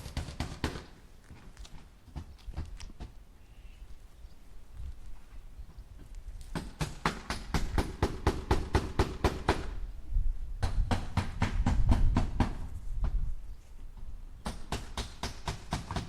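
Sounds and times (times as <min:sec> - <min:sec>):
hammer driving nails into wood: 0:06.5 - 0:09.7, 0:14.4 - 0:16.0.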